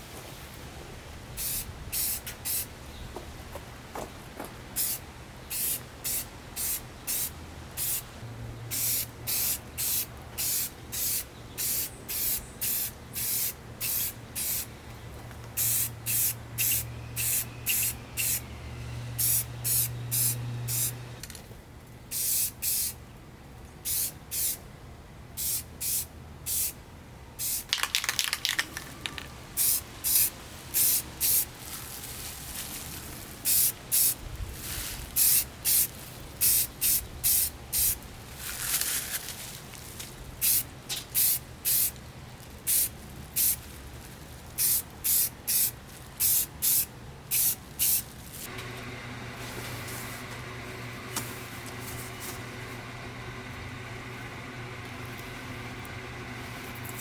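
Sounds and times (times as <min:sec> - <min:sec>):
spray paint can bursts: 0:01.4 - 0:02.7, 0:04.8 - 0:08.0, 0:08.7 - 0:14.7, 0:15.6 - 0:18.4, 0:19.2 - 0:21.4, 0:22.1 - 0:23.0, 0:23.9 - 0:24.6, 0:25.4 - 0:26.8, 0:27.4 - 0:31.5, 0:33.4 - 0:38.0, 0:40.4 - 0:42.0, 0:42.7 - 0:43.6, 0:44.6 - 0:48.5.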